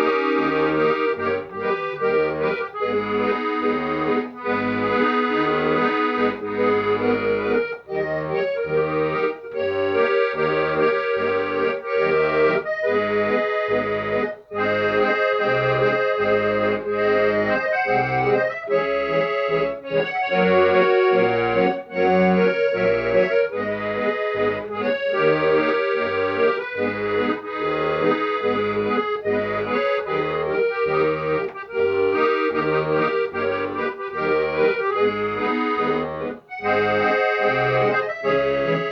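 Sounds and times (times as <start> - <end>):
accordion tune: 0.0 - 38.9.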